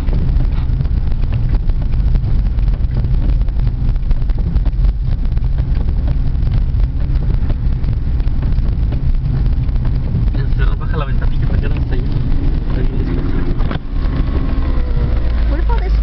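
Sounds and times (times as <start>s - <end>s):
car engine and tyres rumbling: 0.0s - 16.0s
faint crackle: 0.0s - 16.0s.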